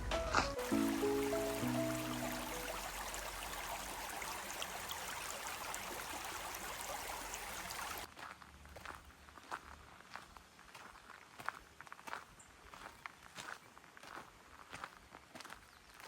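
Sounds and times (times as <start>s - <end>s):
footsteps on forest path: 0.0s - 1.6s, 8.0s - 16.0s
stream rushing: 0.0s - 8.1s.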